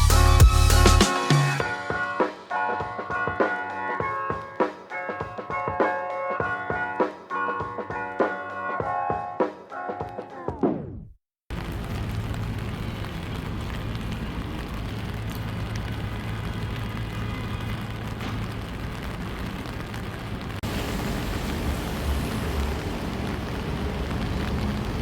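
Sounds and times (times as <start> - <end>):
rain hissing: 11.5 - 25.0
wet traffic: 11.5 - 25.0.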